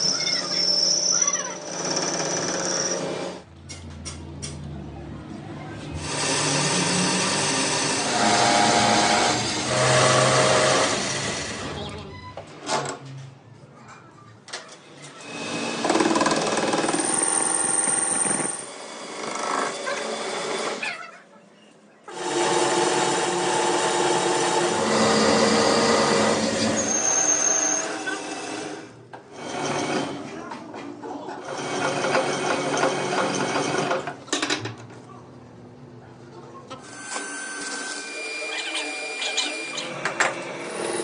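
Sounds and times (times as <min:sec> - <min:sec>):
metalworking machinery running: 0:22.1 - 0:30.4.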